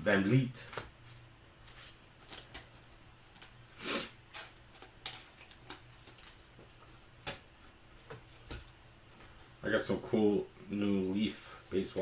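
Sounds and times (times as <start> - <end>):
trading cards clicking and rustling: 0.6 - 3.6, 4.3 - 7.4.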